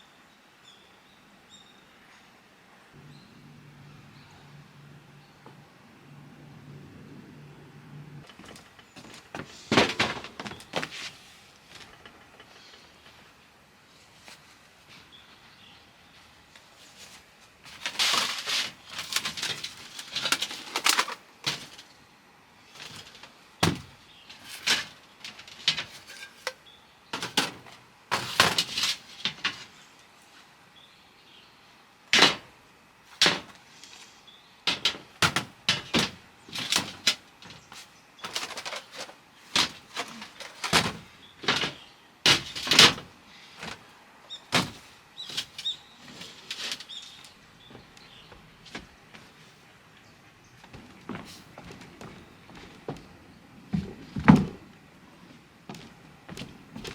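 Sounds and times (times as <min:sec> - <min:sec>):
things rustling and clattering: 0:08.2 - 0:13.4, 0:16.7 - 0:22.0, 0:22.7 - 0:29.9, 0:32.2 - 0:34.1, 0:34.7 - 0:49.6, 0:50.6 - 0:56.9.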